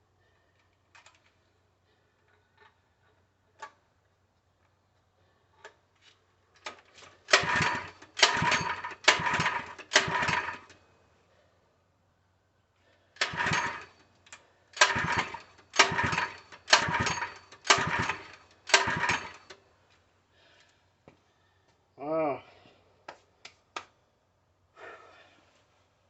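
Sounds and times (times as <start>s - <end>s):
recoil starter rasping: 7.0s - 10.8s, 13.2s - 14.0s, 14.8s - 19.6s.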